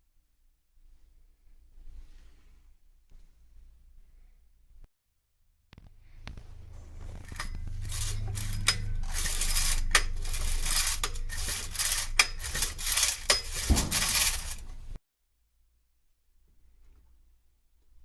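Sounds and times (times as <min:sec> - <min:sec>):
rasping rubbing noise: 0:06.4 - 0:15.0
metal clinking and clicking: 0:06.8 - 0:15.0.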